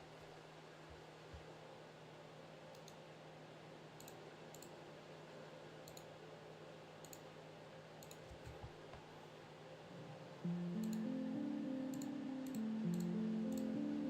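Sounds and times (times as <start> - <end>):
faint low hum: 0.0 - 14.0
mouse clicks: 7.0 - 7.3, 8.0 - 8.7
keystrokes: 10.4 - 11.2, 11.9 - 13.9.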